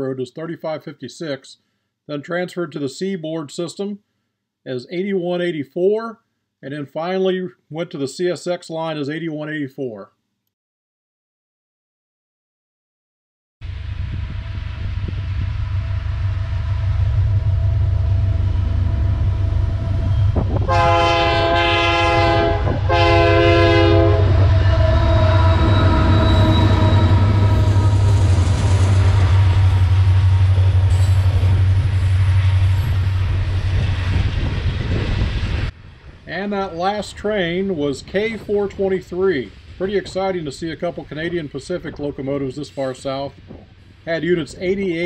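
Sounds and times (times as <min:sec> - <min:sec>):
freight train rumbling past: 0:13.6 - 0:45.0
train air horn blasts: 0:19.1 - 0:33.0.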